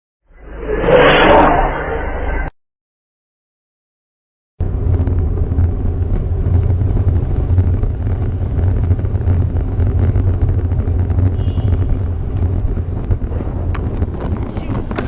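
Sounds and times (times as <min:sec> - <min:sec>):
vehicle engine and road noise: 0:04.6 - 0:15.0.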